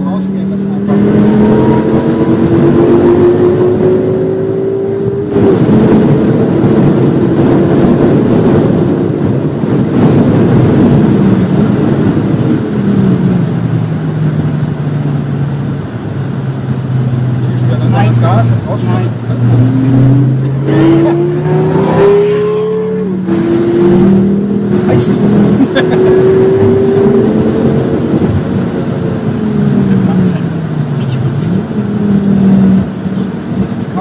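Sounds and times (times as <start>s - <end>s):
car engine at full throttle: 0.0s - 34.0s.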